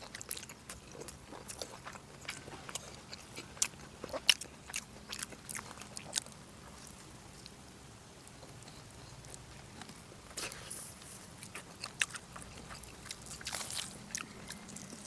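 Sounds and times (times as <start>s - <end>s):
wet chewing and biting: 0.0s - 7.6s, 11.4s - 15.0s.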